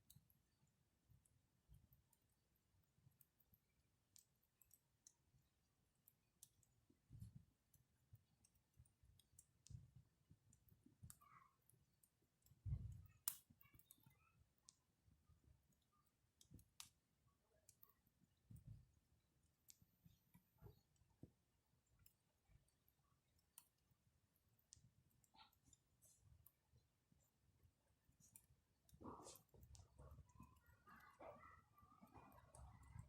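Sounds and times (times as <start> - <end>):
campfire crackling: 12.8 - 13.9.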